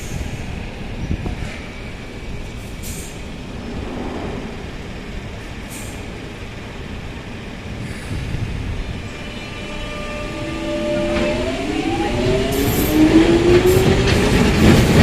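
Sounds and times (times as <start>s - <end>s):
low rumble of trains: 0.0s - 15.0s
road traffic: 0.0s - 15.0s
sharp air hisses: 2.6s - 6.2s.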